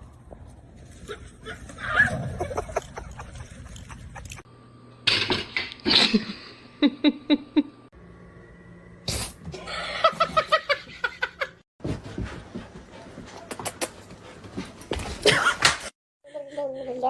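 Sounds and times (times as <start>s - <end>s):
people laughing: 2.2s - 4.4s.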